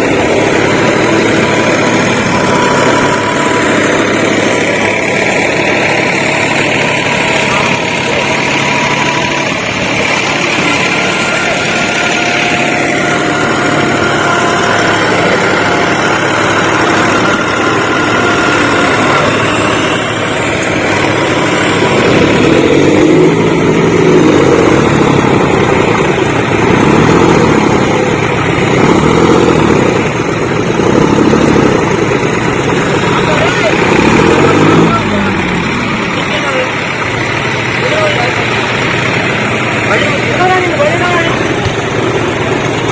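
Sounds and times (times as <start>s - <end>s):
diesel tractor engines revving: 0.0s - 42.9s.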